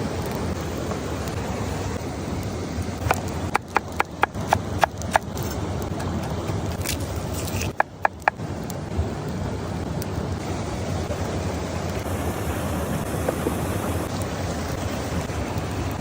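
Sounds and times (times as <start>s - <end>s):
sharp taps: 3.0s - 5.3s, 7.7s - 8.4s
waterfall rushing: 10.4s - 16.0s.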